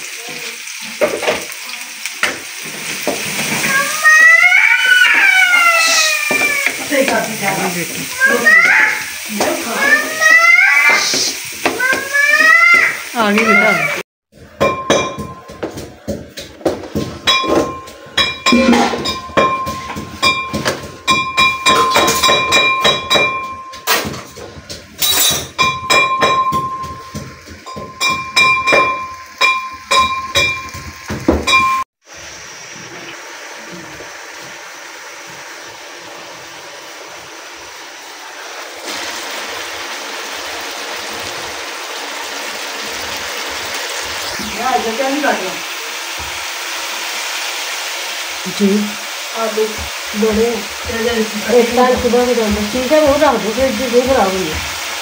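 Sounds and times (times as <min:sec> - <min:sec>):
food sizzling in wok: 0:00.0 - 0:55.0
spatula knocking and scraping wok: 0:02.2 - 0:03.9, 0:06.2 - 0:13.6, 0:14.3 - 0:31.8, 0:48.6 - 0:55.0.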